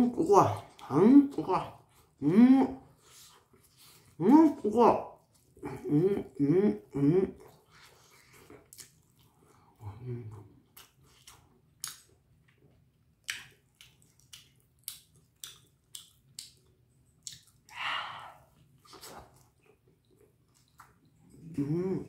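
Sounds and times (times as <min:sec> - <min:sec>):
chewing with wet mouth smacks: 0:05.1 - 0:05.7, 0:07.4 - 0:17.7, 0:18.5 - 0:21.6.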